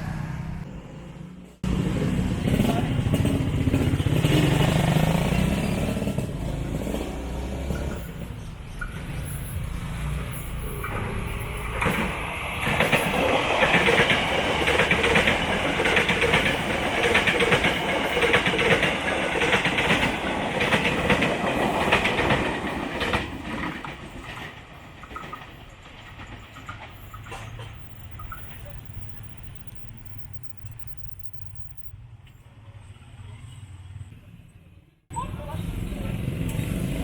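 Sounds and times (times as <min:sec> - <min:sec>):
train wheels clattering over rails: 0:01.8 - 0:29.7.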